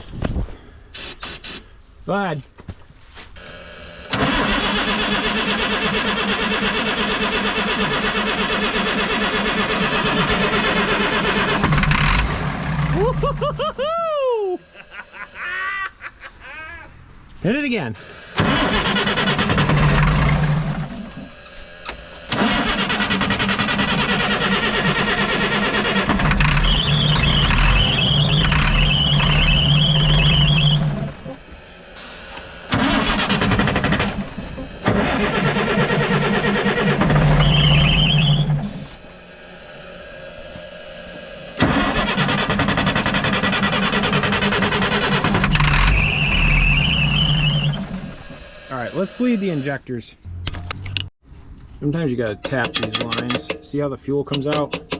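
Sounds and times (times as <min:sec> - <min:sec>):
starter cranking diesel engine: 0:03.4 - 0:13.8, 0:18.0 - 0:51.1, 0:52.3 - 0:53.6.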